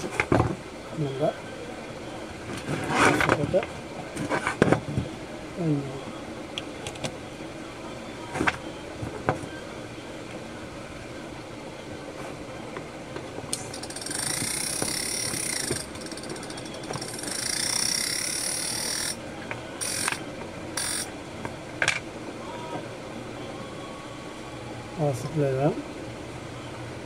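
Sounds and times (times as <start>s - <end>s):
small motor whirring: 13.6s - 19.2s, 19.8s - 20.2s, 20.8s - 21.1s.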